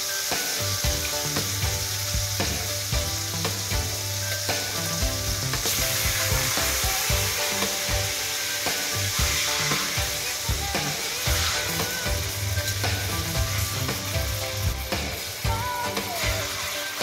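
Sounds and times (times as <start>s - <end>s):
chicken sizzling in hot oil: 0.0s - 17.0s
metal tongs scraping a pan: 15.9s - 17.0s.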